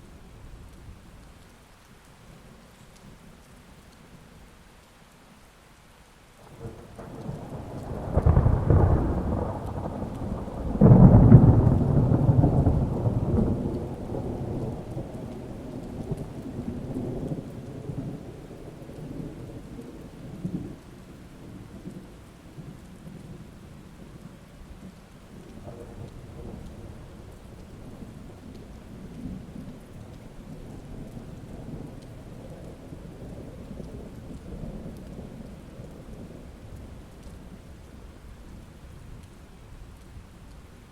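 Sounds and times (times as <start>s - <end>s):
steady rain: 0.0s - 40.9s
thunderclap: 6.4s - 20.8s, 24.7s - 38.0s
thunder rumbling: 6.4s - 40.9s.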